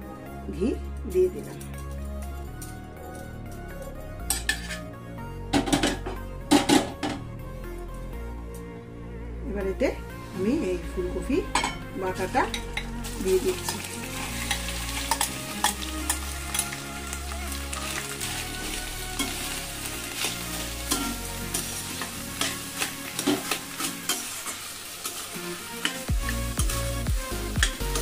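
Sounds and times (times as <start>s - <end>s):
steel spatula scraping a pan: 4.3s - 4.9s, 12.4s - 16.7s, 19.2s - 26.1s
paste sizzling in a pan: 13.0s - 28.0s.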